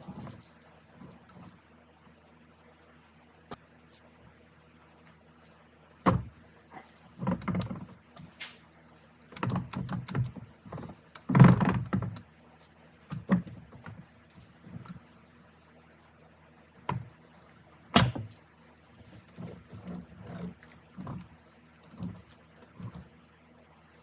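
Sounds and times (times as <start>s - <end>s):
steady low hum: 0.0s - 24.0s
metal parts clunking and knocking: 17.9s - 18.4s.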